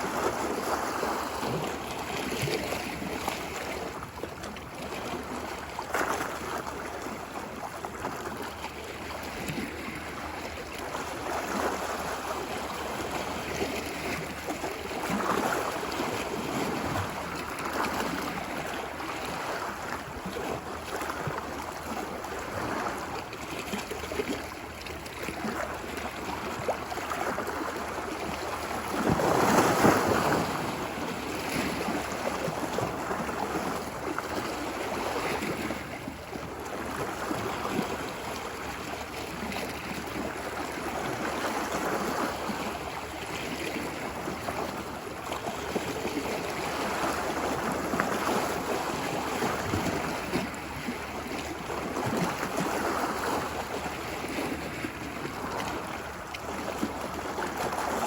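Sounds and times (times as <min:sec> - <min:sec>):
ocean waves on a beach: 0:00.0 - 0:58.0.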